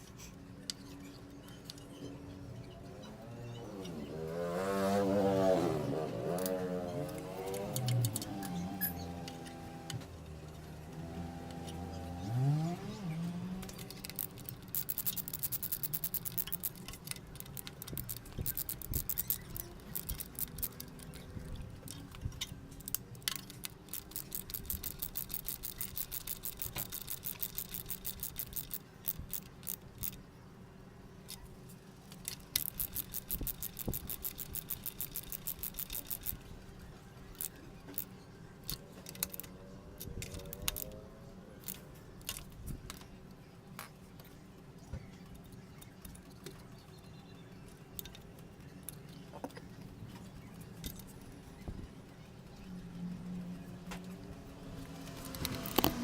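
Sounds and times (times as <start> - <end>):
socket ratchet clicking: 13.6 - 30.2, 32.2 - 36.4, 38.7 - 41.0, 55.2 - 56.0.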